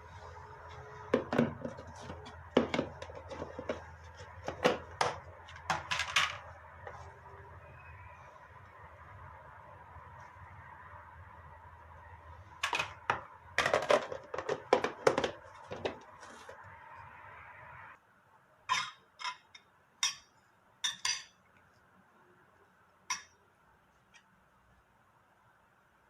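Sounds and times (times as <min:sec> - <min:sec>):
steady background hum: 0:00.0 - 0:26.0
dishes and cutlery clinking: 0:18.7 - 0:21.4, 0:23.1 - 0:23.4.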